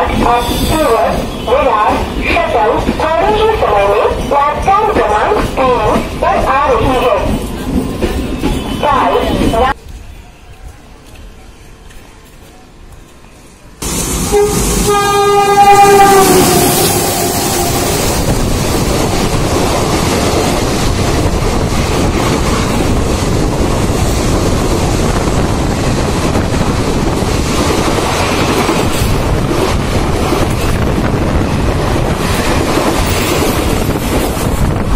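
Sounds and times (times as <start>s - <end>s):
train coaches running past: 0.0s - 34.9s
train horn: 13.8s - 18.4s.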